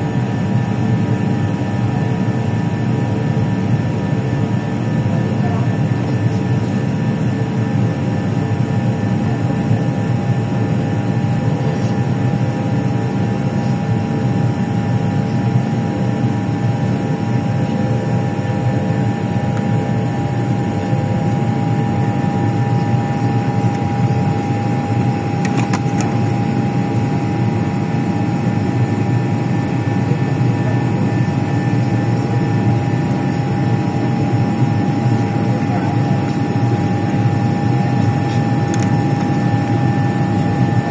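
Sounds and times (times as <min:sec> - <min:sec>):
aircraft drone: 0:00.0 - 0:40.9
thin steady whine: 0:11.0 - 0:40.9.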